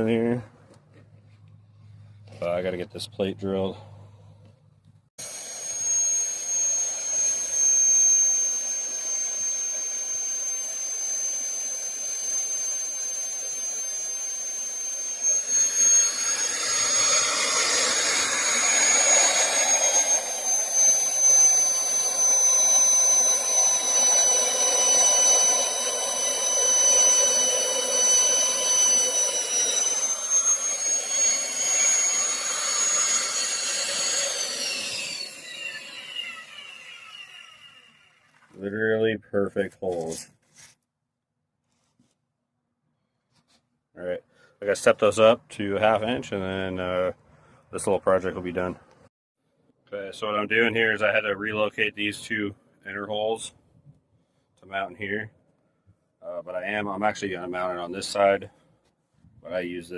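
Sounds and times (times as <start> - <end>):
drill cutter cutting metal plate: 5.2 - 38.4
magnetic drill whining: 5.2 - 39.1, 56.5 - 58.6.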